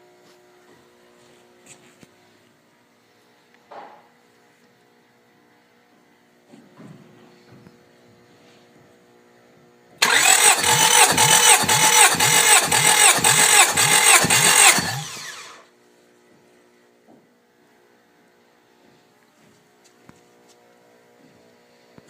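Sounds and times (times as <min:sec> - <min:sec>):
engine cranking by starter motor: 0:10.0 - 0:15.7.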